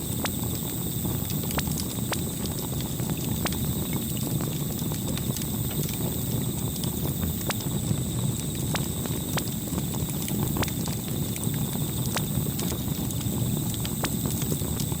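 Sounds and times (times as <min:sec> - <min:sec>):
burning wood crackles and pops: 0:00.0 - 0:15.0
low rumble of flames: 0:00.0 - 0:15.0.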